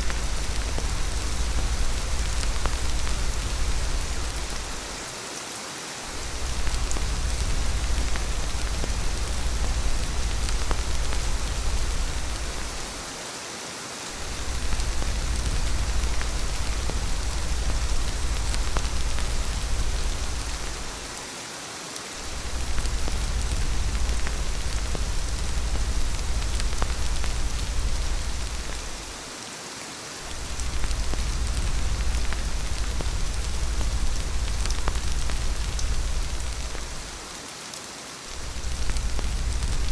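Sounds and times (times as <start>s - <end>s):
deep low rumble: 0.0s - 4.9s, 6.2s - 13.0s, 14.2s - 21.0s, 22.3s - 29.1s, 30.3s - 37.2s, 38.4s - 39.9s
rain falling: 0.0s - 39.9s.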